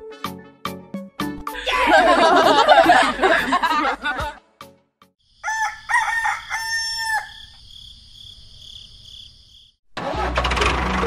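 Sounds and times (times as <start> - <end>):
rooster crowing: 5.4 - 7.6.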